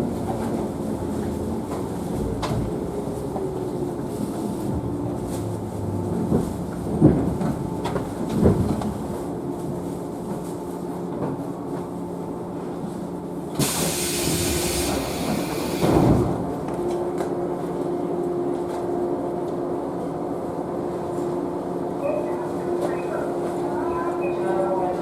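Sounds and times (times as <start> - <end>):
train equipment hum: 0.0 - 25.0
compressed-air hiss: 13.6 - 15.8.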